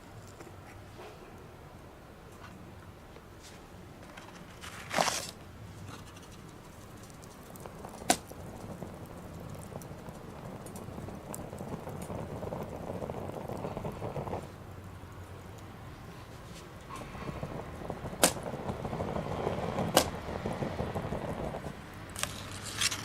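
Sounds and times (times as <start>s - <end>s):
small wood fire crackling: 0.0s - 23.0s
rustling hiss: 4.5s - 23.0s
sharp pop of fire: 6.6s - 14.6s, 16.8s - 23.0s.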